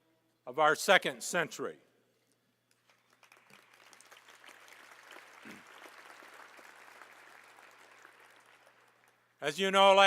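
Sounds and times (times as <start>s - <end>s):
audience applauding: 2.9s - 9.3s.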